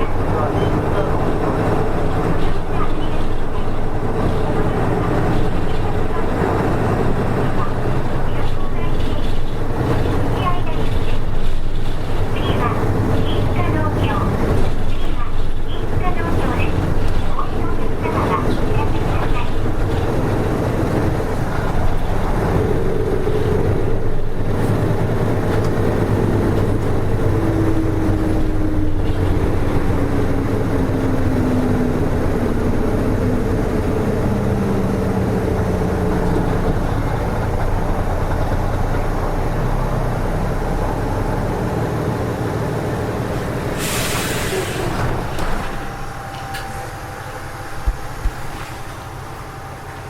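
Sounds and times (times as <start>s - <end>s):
bus engine rumble: 0.0s - 50.0s
drivetrain whine: 44.6s - 50.0s.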